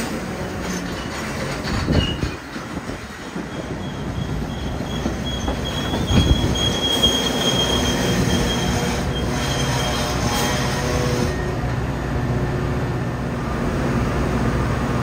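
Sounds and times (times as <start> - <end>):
train wheels rumbling and clattering: 0.0 - 15.0
thin wheel squeal: 3.5 - 11.4.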